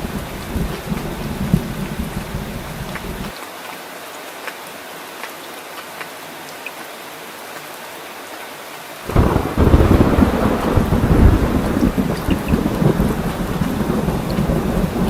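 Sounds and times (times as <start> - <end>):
deep rumble of thunder: 0.0 - 3.3, 9.1 - 15.0
rain falling: 0.0 - 15.0.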